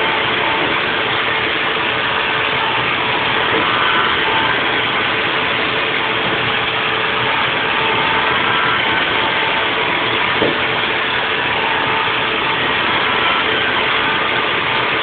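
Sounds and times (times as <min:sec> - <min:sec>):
cnc mill machining: 0:00.0 - 0:15.0
faint steady whine: 0:00.0 - 0:15.0.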